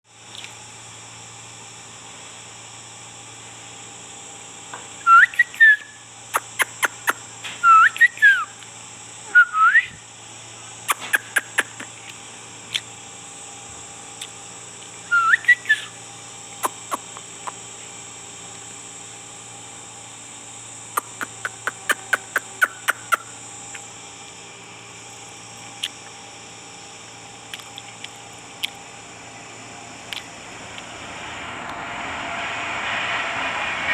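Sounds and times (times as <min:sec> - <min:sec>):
faint steady hum: 0:00.1 - 0:33.9
parrot whistling: 0:05.0 - 0:08.5, 0:09.3 - 0:10.0, 0:10.9 - 0:11.9, 0:15.0 - 0:16.0, 0:16.6 - 0:17.6, 0:21.0 - 0:23.8
parrot clicking: 0:10.9 - 0:11.9, 0:16.6 - 0:17.3, 0:21.0 - 0:23.8.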